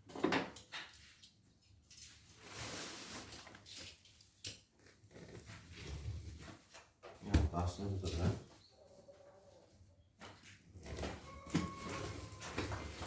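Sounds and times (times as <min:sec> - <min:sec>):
scraping rustle: 0:02.1 - 0:03.9, 0:10.3 - 0:13.0.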